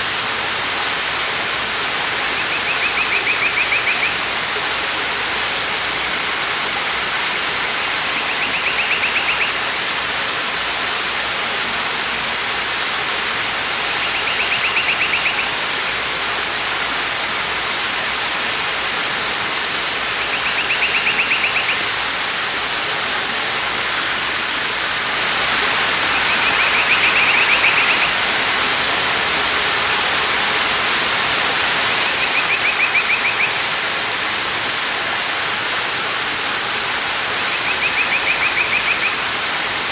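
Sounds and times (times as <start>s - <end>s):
waterfall rushing: 0.0s - 39.9s
bird trilling: 2.4s - 4.2s, 8.2s - 9.6s, 14.0s - 15.5s, 20.3s - 21.9s, 26.1s - 28.2s, 32.1s - 33.6s, 37.6s - 39.2s.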